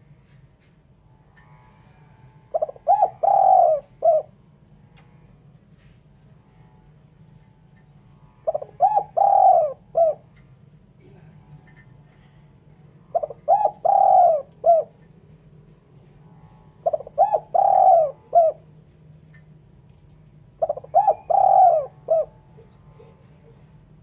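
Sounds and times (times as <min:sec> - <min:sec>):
dove cooing: 0:01.4 - 0:04.4, 0:08.4 - 0:10.4, 0:13.0 - 0:18.9, 0:20.4 - 0:24.0.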